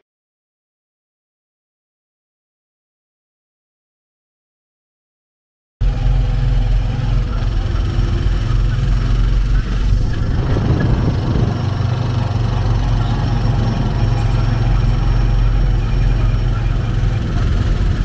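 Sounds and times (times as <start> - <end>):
motorcycle engine running: 5.8 - 18.0.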